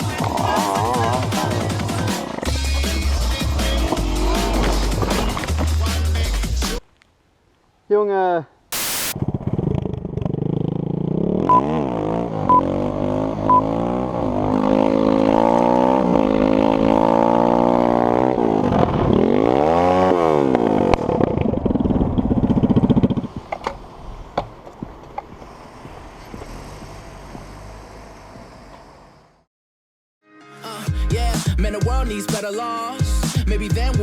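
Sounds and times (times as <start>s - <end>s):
motorcycle engine revving: 0.0s - 6.1s, 8.9s - 23.3s
short beeps: 11.5s - 11.7s, 13.5s - 13.7s.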